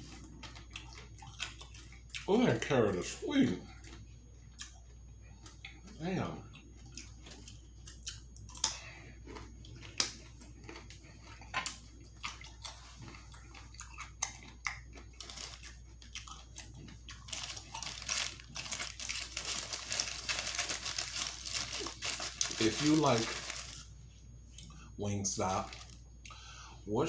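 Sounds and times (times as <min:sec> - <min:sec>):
food crunching: 0:00.0 - 0:03.1, 0:03.8 - 0:24.8
crackling and rustling: 0:16.8 - 0:23.9.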